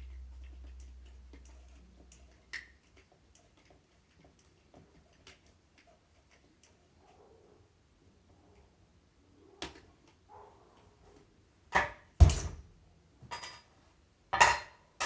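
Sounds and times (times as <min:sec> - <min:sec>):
knocks and clatters of tools: 0:13.2 - 0:15.0.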